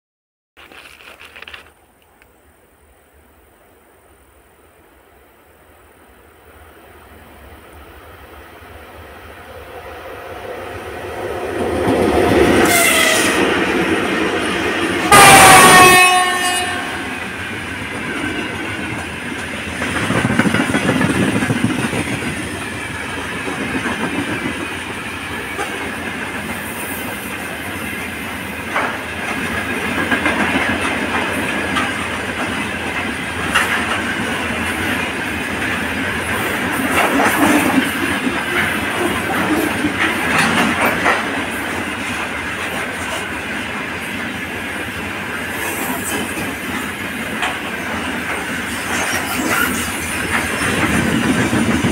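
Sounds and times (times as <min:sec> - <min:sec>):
freight train wheel rumble: 0:00.6 - 0:51.9
wheels clacking over rail joints: 0:11.6 - 0:27.6, 0:28.5 - 0:44.2, 0:45.4 - 0:51.9
locomotive horn blasts: 0:12.6 - 0:13.6, 0:15.0 - 0:17.2.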